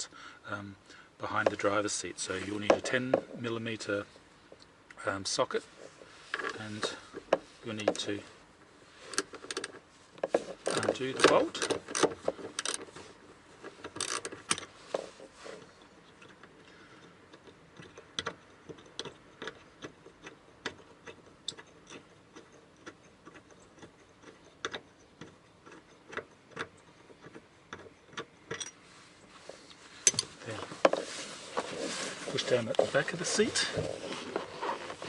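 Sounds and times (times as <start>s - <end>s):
ratchet wrench clicking: 11.6s - 12.8s, 14.0s - 14.7s.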